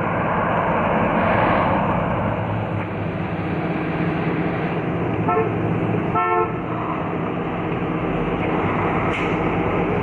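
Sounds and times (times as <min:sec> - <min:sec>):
car horn toots: 0:05.2 - 0:06.6.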